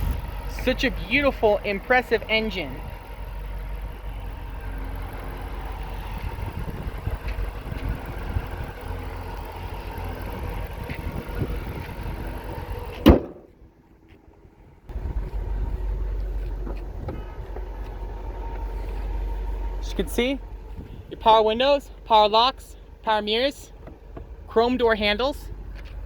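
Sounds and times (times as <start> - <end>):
car engine idling: 0.0 - 26.0
loud thump: 13.0 - 13.6.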